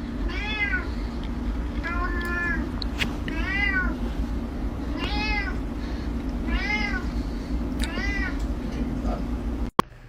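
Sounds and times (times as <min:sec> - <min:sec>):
cat meowing: 0:00.3 - 0:00.9, 0:01.8 - 0:02.7, 0:03.3 - 0:04.0, 0:04.9 - 0:05.6, 0:06.5 - 0:07.1, 0:07.8 - 0:08.4.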